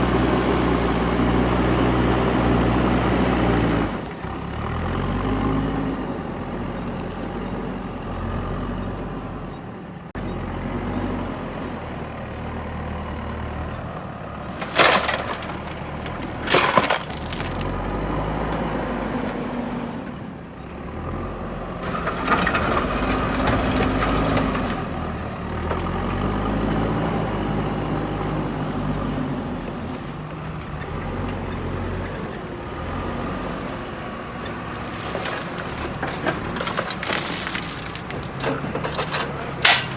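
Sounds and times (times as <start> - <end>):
diesel engine revving: 0.0 - 39.9
sharp bangs: 36.4 - 39.9.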